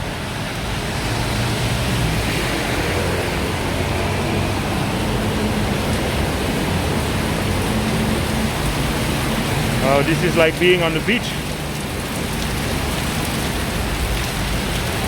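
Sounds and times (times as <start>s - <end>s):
cars driving through water: 0.0s - 15.0s.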